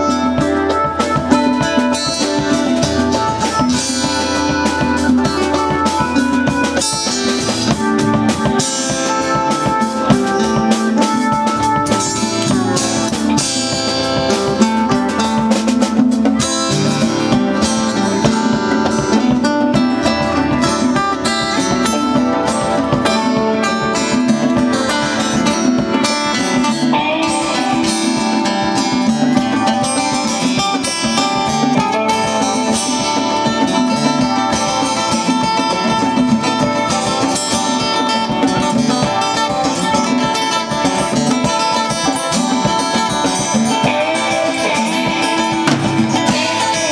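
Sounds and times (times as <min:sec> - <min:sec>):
electric guitars: 0:00.0 - 0:46.9
rock band playing: 0:00.0 - 0:46.9
steady drum beat: 0:00.0 - 0:46.9.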